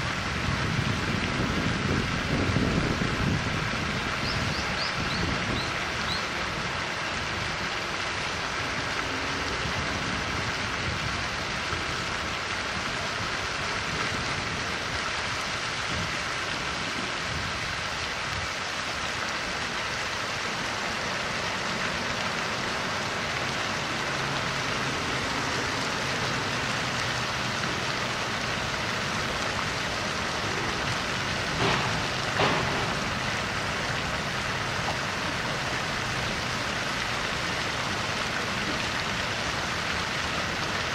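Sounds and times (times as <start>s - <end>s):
steady rushing noise: 0.0s - 40.9s.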